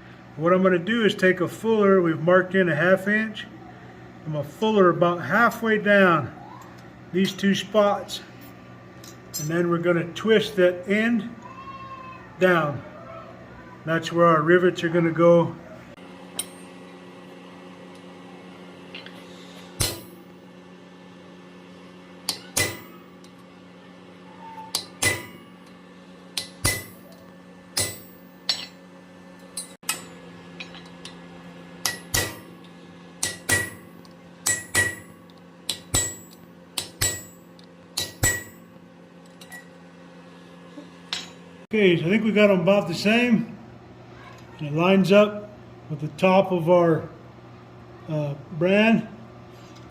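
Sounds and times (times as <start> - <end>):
steady low hum: 0.0 - 49.9
hammer ringing on steel: 24.7 - 25.4, 26.4 - 27.1, 27.8 - 28.8, 33.2 - 35.1, 35.7 - 37.4, 38.0 - 38.6.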